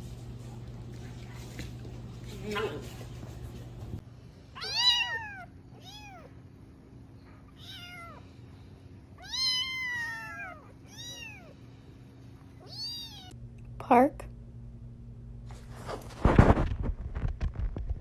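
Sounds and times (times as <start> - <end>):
cat meowing: 4.6 - 6.4, 7.5 - 8.3, 9.2 - 11.6, 12.6 - 13.4.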